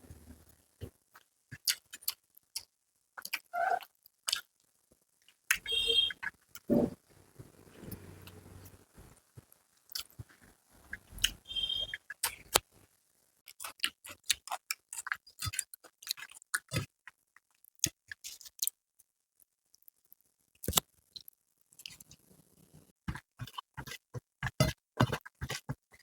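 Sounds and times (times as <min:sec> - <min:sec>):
person chewing with wet smacks: 0:01.6 - 0:04.5, 0:09.9 - 0:10.3, 0:13.5 - 0:18.8.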